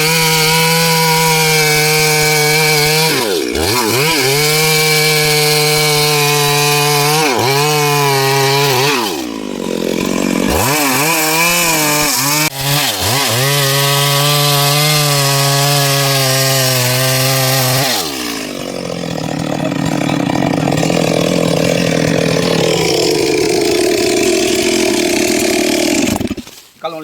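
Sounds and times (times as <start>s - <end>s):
chainsaw cutting wood: 0.0s - 26.8s.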